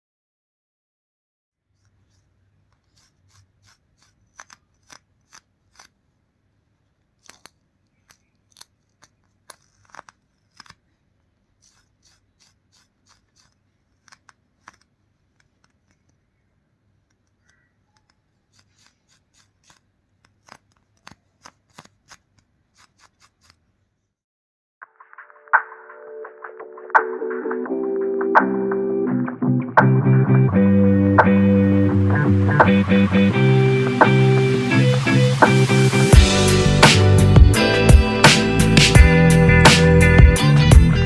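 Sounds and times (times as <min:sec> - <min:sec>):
scissors snipping: 0:01.8 - 0:06.0, 0:07.0 - 0:16.3, 0:17.0 - 0:23.6.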